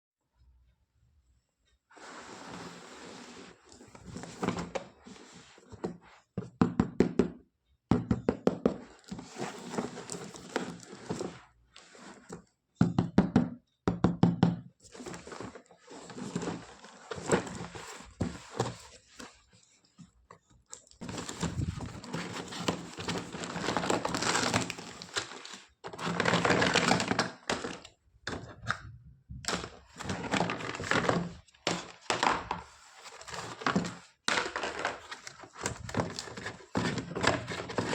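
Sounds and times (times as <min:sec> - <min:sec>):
rustling and clatter: 0:14.8 - 0:28.6, 0:29.5 - 0:37.9.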